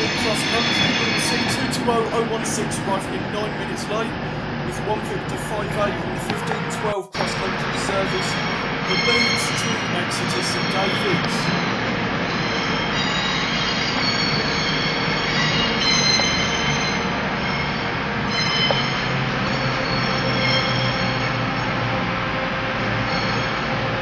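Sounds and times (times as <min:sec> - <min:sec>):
train wheels squealing: 0:00.0 - 0:04.2, 0:07.2 - 0:22.2, 0:22.8 - 0:24.0
diesel engines running: 0:00.0 - 0:24.0.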